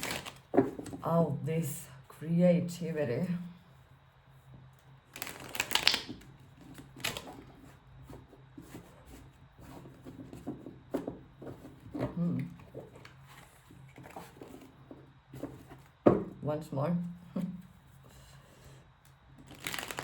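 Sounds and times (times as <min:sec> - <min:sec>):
cards being shuffled: 0:00.0 - 0:00.9, 0:05.1 - 0:07.7, 0:19.4 - 0:20.0.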